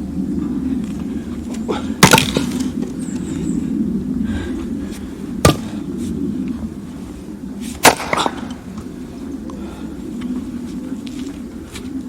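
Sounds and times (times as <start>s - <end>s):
steady low hum: 0.0s - 12.0s
axe striking firewood: 2.0s - 2.6s, 5.4s - 5.7s, 7.8s - 8.6s.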